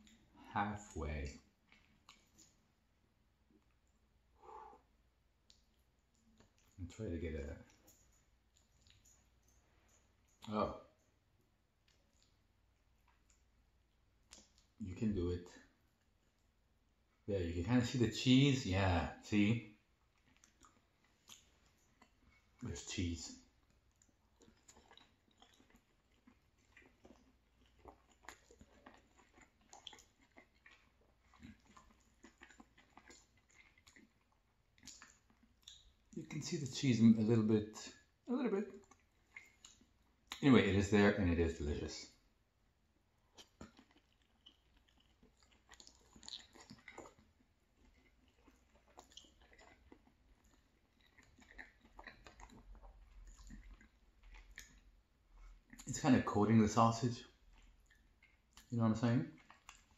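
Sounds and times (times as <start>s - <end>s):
faint chewing: 0.0s - 17.2s, 17.9s - 59.9s
wet mouth clicks: 5.4s - 6.8s, 14.2s - 14.8s, 20.2s - 22.4s, 34.8s - 36.3s, 43.3s - 47.2s.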